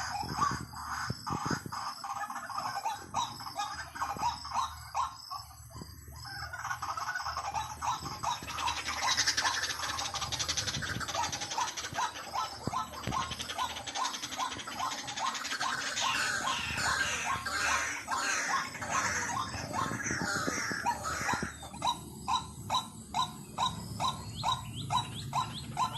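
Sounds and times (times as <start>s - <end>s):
bird kwak call: 0.0s - 25.9s
high fast chattering: 6.5s - 22.5s.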